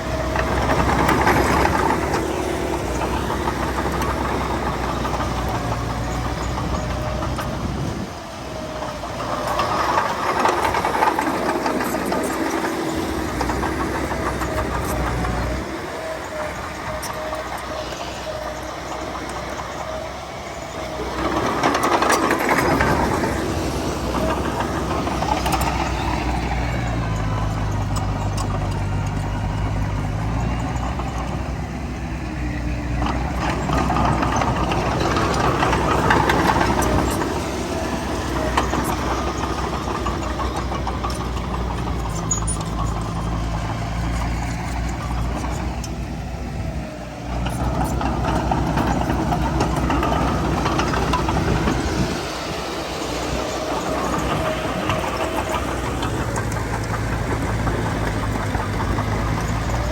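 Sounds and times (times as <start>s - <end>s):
diesel machinery engine hum: 0.0s - 59.9s.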